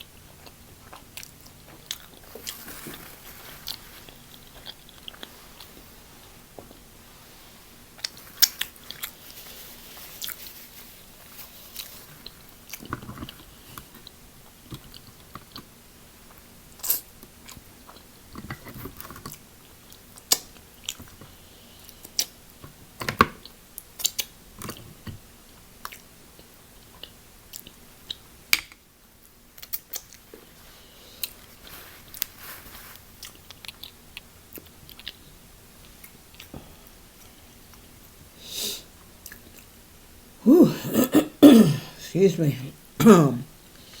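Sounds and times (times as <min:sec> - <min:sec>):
person chewing and crunching food: 0:00.0 - 0:06.9, 0:07.9 - 0:22.6, 0:23.4 - 0:25.0, 0:25.8 - 0:28.3, 0:29.5 - 0:37.9, 0:39.2 - 0:39.7.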